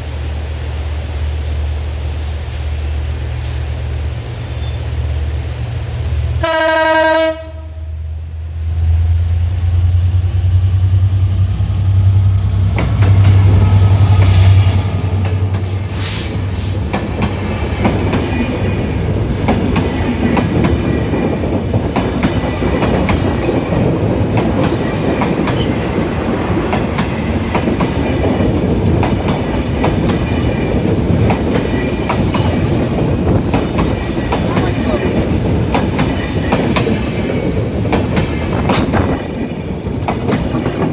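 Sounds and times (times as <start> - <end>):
locomotive engine drone: 0.0 - 19.5
locomotive horn: 6.4 - 8.0
train wheels clacking on rails: 9.3 - 40.9.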